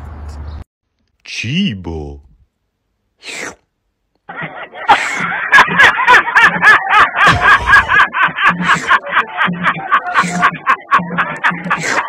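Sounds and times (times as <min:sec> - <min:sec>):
man laughing: 0:04.3 - 0:12.0.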